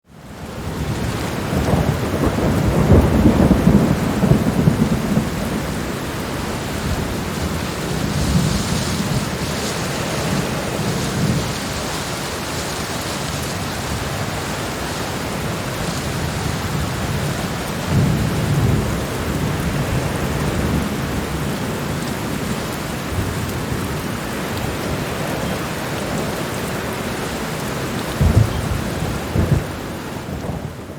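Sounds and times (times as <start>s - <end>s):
heavy rain falling: 0.1s - 30.9s
thunder rumbling: 0.4s - 30.9s
thunder crack: 1.2s - 20.8s, 28.1s - 30.9s.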